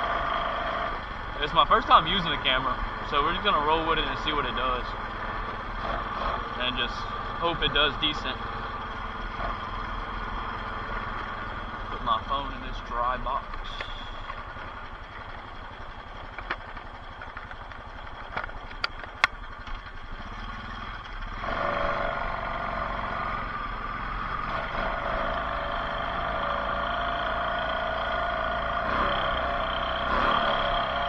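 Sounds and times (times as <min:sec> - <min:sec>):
off-road bike engine idling: 0:00.0 - 0:31.0
sharp clicks and knocks: 0:16.1 - 0:20.0.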